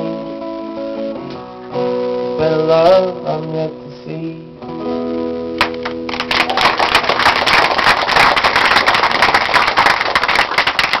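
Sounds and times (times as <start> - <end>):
audience clapping: 5.6 - 11.0.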